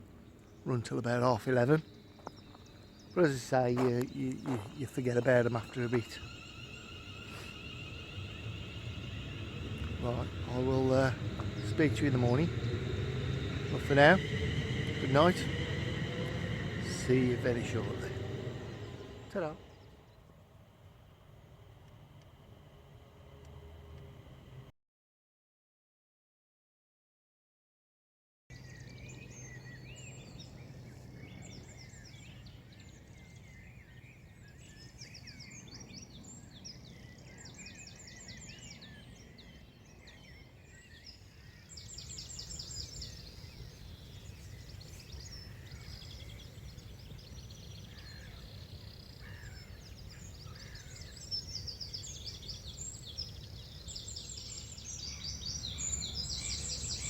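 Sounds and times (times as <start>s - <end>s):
songbirds trilling: 0.0s - 20.3s, 28.6s - 57.0s
low steady hum: 1.6s - 24.7s.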